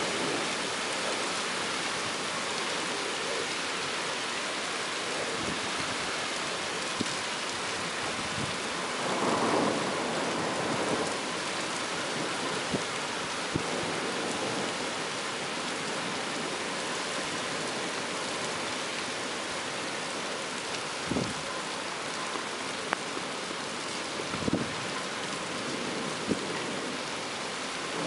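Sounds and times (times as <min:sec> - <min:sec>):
heavy rain falling: 0:00.0 - 0:28.0
sharp taps of raindrops: 0:06.8 - 0:07.2, 0:22.1 - 0:23.3.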